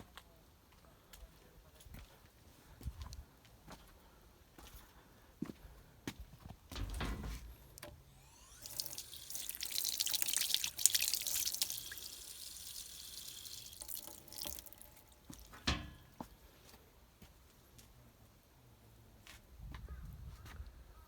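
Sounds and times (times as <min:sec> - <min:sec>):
water running and splashing: 0:08.3 - 0:15.8.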